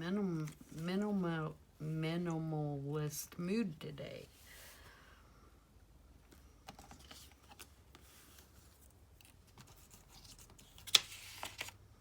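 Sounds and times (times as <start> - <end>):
paper and card rustling: 6.7 - 11.8.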